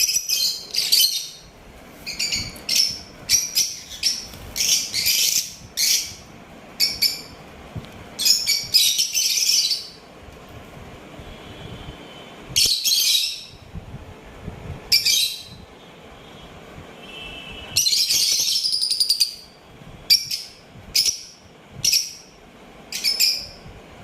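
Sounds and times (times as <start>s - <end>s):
parrots chirping and chattering: 0.0s - 7.5s, 8.2s - 10.1s, 12.6s - 13.6s, 14.9s - 15.6s, 17.8s - 23.6s.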